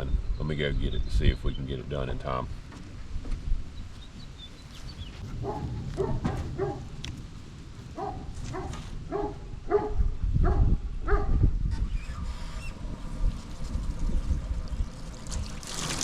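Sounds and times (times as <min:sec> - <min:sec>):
low rumble: 0:05.0 - 0:11.7
dog barking: 0:05.3 - 0:07.0, 0:08.0 - 0:11.4.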